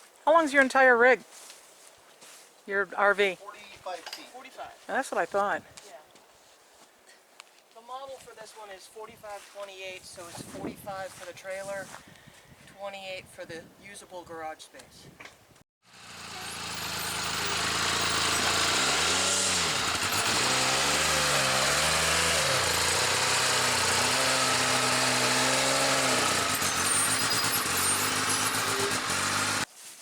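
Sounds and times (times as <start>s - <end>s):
utility vehicle engine running: 15.9s - 29.7s.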